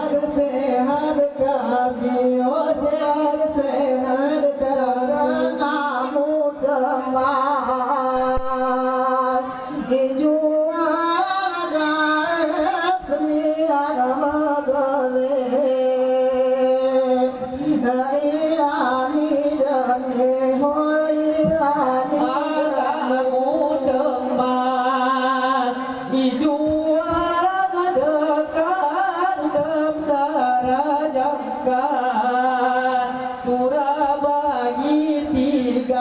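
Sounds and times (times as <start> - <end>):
men singing a chant: 0.0 - 36.0.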